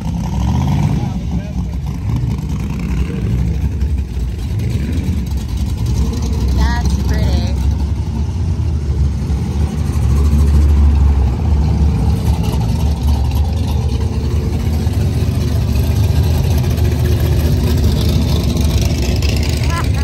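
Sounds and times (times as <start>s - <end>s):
car engines rumbling past: 0.0s - 20.0s.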